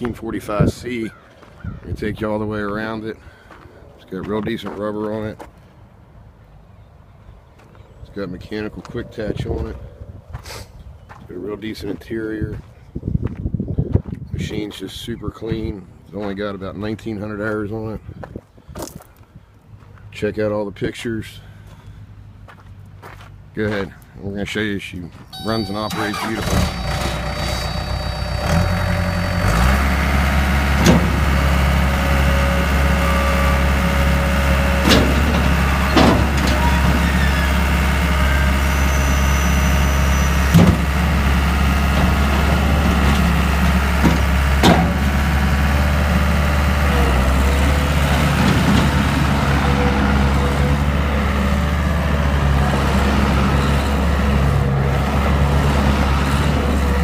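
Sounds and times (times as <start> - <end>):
diesel engine running: 7.5 - 10.4, 25.4 - 57.0
sharp clunks: 30.8 - 31.4, 34.8 - 37.1, 40.4 - 41.1, 42.0 - 45.2.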